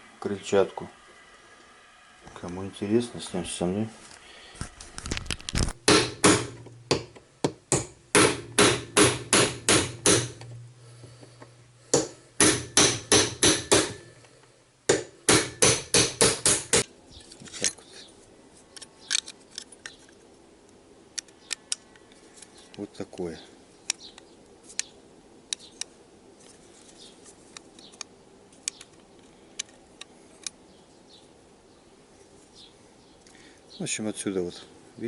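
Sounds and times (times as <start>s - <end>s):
hammer striking metal motor: 7.7s - 10.4s, 12.0s - 14.1s.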